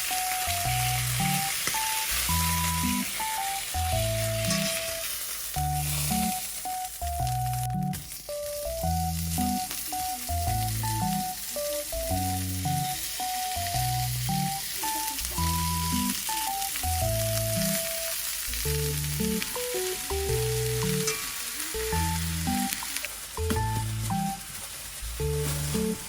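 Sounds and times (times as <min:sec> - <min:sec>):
food sizzling in hot oil: 0:00.0 - 0:26.0
background music with bass line: 0:10.3 - 0:11.3, 0:18.5 - 0:21.1, 0:21.8 - 0:22.7, 0:23.4 - 0:24.4, 0:25.0 - 0:26.0.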